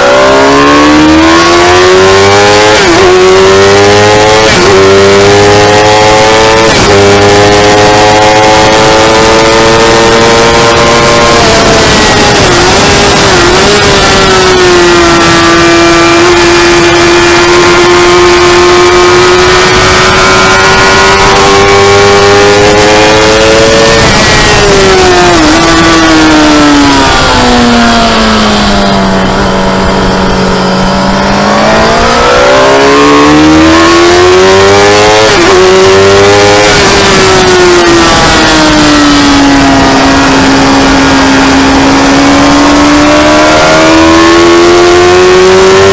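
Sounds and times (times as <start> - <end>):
motorcycle engine revving high: 0.0 - 45.9
wind rush: 8.6 - 42.8.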